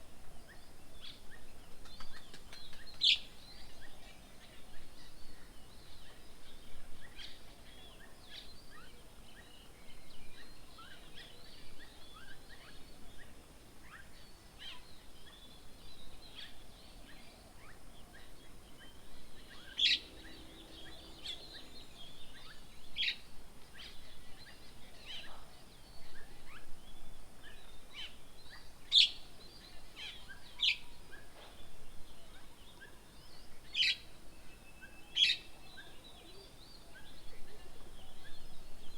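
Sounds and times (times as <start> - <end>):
wild birds chirping: 0.5 - 38.9.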